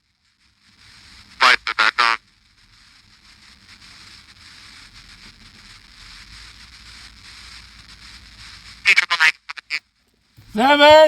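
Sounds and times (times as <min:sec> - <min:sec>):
light crackle: 0:00.0 - 0:11.0
radio static hiss: 0:00.0 - 0:11.0.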